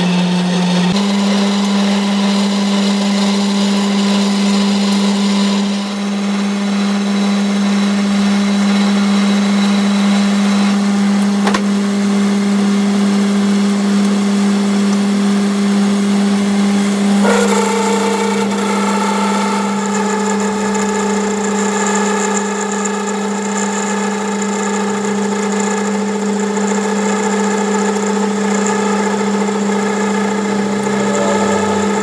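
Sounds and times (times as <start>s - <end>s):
electric machine humming: 16.1s - 23.1s, 28.0s - 32.0s.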